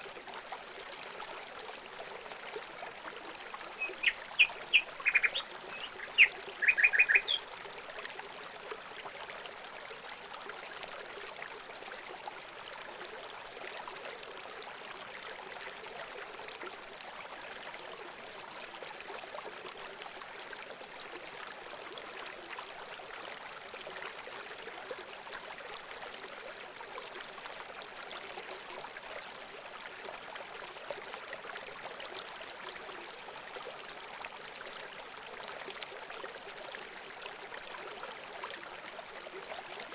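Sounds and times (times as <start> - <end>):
water trickling: 0.0 - 39.9
loud bird calls: 3.8 - 7.4.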